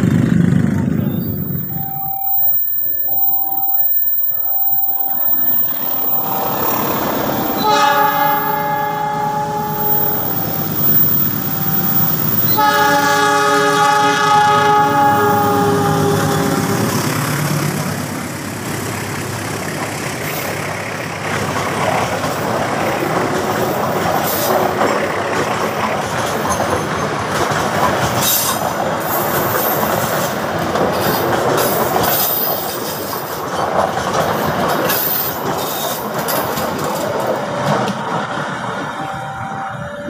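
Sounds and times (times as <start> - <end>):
train wheels on rails: 0.0 - 40.0
high-pitched wheel squeals: 1.0 - 13.0
clattering over rail joints: 21.3 - 38.2.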